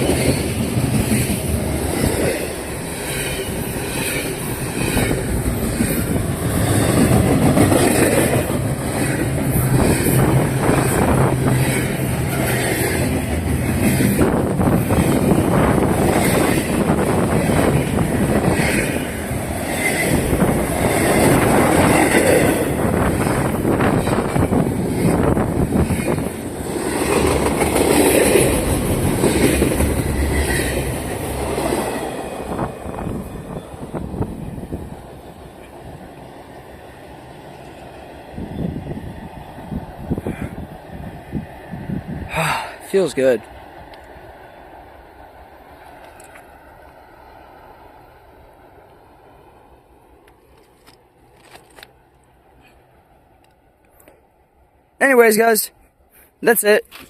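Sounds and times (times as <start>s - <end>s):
wheels clicking over rail joints: 0.0s - 36.3s, 50.1s - 54.3s
freight train rumble: 0.0s - 56.7s.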